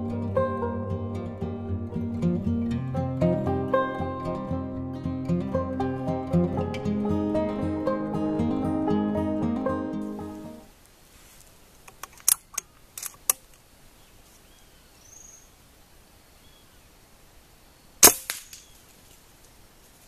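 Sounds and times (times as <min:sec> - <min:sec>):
background music: 0:00.0 - 0:10.7
outdoor ambience: 0:00.0 - 0:20.0
high bird chirps: 0:14.5 - 0:15.5.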